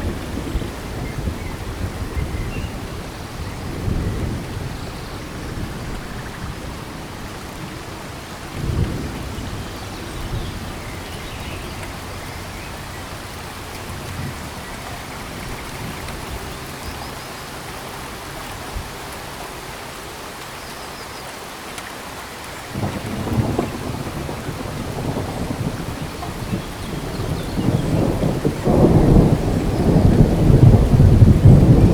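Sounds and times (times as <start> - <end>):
thunder rumbling: 0.0 - 16.5, 22.7 - 31.9
steady rain: 0.0 - 31.9.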